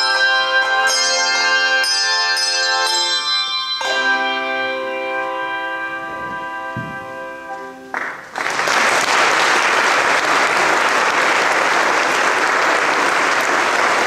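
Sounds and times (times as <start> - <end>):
held musical chord: 0.0 - 8.0
audience applauding: 7.9 - 14.0.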